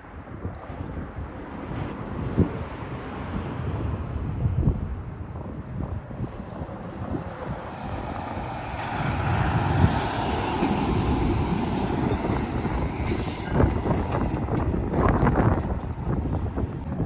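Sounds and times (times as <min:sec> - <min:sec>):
truck passing on highway: 0:06.5 - 0:16.9.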